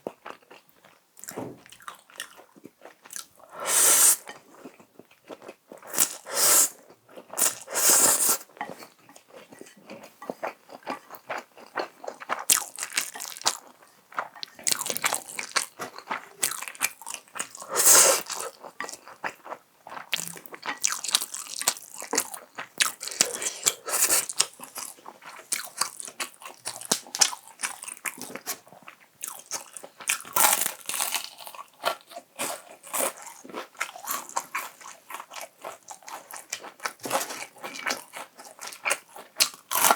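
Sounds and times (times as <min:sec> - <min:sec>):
crunching fried chicken: 0:12.2 - 0:28.5, 0:29.2 - 0:39.9.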